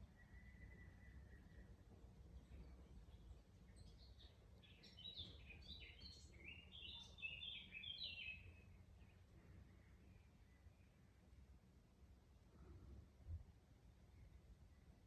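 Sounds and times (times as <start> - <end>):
songbird singing faintly: 0.0 - 15.0.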